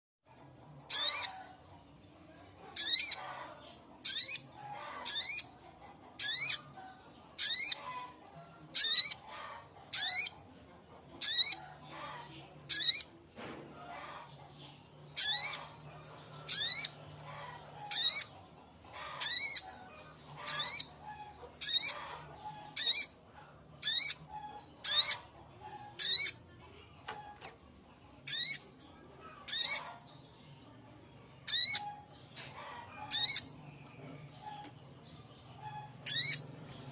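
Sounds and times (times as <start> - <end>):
bird calling sharp high calls: 0.9 - 1.4, 4.0 - 5.5, 7.4 - 8.0, 33.0 - 33.5, 35.6 - 36.5.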